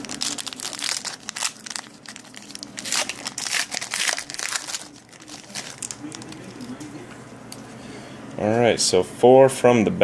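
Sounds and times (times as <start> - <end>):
card pack crinkling: 0.0 - 7.0.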